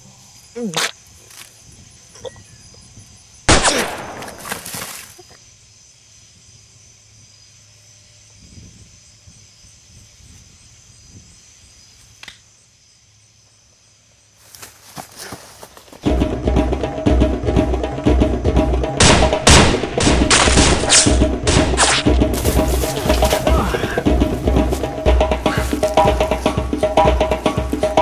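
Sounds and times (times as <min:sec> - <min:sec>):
gunshot: 0:03.5 - 0:04.6, 0:19.0 - 0:22.1.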